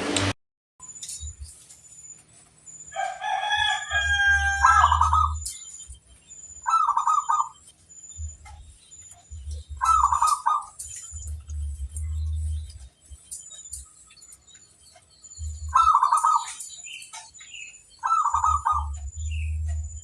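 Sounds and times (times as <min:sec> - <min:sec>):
doves cooing: 0:03.4 - 0:05.5, 0:06.6 - 0:07.6, 0:09.2 - 0:12.9, 0:15.4 - 0:16.6, 0:18.0 - 0:19.8.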